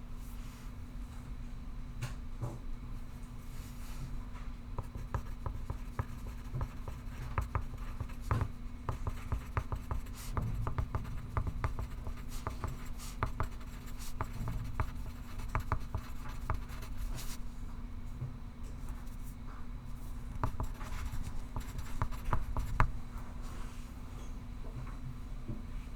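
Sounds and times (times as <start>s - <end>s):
steady low hum: 2.9s - 24.5s
pencil scratching on paper: 4.8s - 17.4s, 20.3s - 22.9s.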